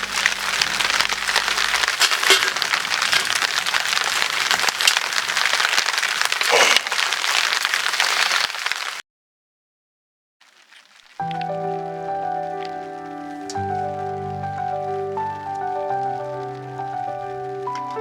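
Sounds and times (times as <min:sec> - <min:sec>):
rain pattering: 0:00.0 - 0:09.0, 0:10.4 - 0:18.0
wood fire crackling: 0:00.0 - 0:09.0, 0:10.4 - 0:18.0
background music: 0:11.2 - 0:18.0.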